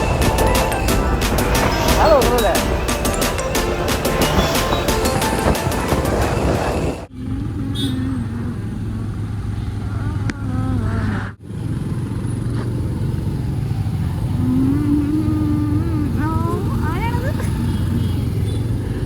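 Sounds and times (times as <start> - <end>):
faint voices: 0.0 - 8.7
motorcycle engine hum: 0.0 - 19.0
road and wind noise: 0.0 - 19.0.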